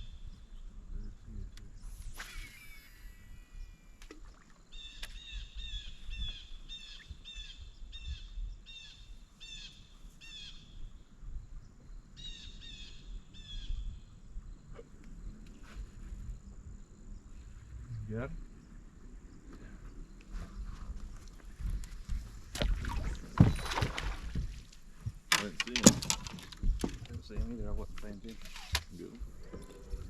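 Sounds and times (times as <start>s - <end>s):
songbird singing: 0.0s - 2.0s, 2.6s - 30.0s.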